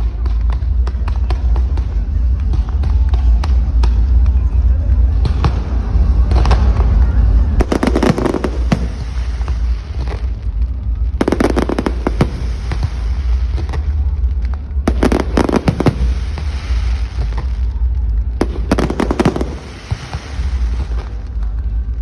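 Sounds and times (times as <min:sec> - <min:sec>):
low rumble: 0:05.8 - 0:22.0
firecrackers banging: 0:07.6 - 0:14.1, 0:14.7 - 0:21.4.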